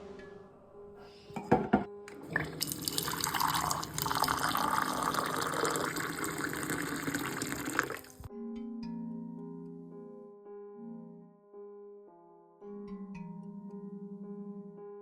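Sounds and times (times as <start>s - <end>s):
water running from a tap: 2.1s - 8.3s.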